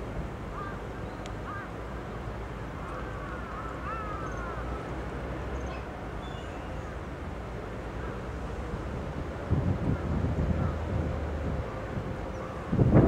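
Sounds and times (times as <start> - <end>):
distant bird calls: 0.5 - 1.8, 2.8 - 7.0.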